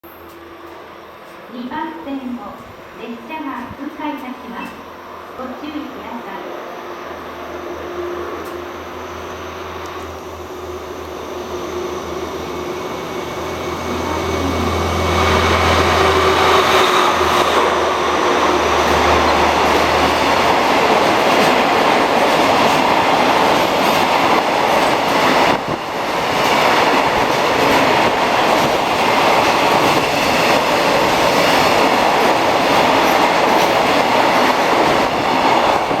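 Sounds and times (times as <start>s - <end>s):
train wheels rolling on rails: 0.0s - 5.0s, 7.2s - 36.0s
locomotive diesel engine drone: 7.7s - 22.1s.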